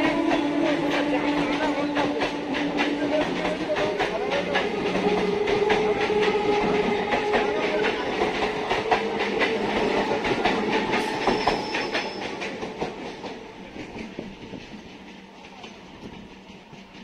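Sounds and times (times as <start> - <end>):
steady train hum: 0.0 - 17.0
train wheels clicking over rail joints: 0.0 - 17.0.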